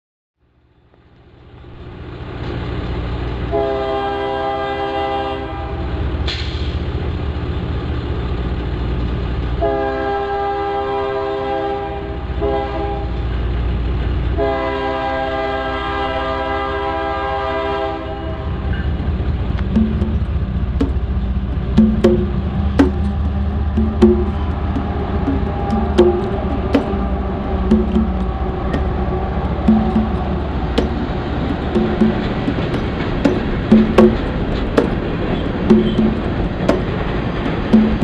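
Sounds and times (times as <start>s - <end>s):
low rumble of train engines: 0.5s - 23.8s, 26.3s - 31.5s
train air horn blasts: 3.5s - 6.0s, 9.6s - 13.2s, 14.4s - 18.6s.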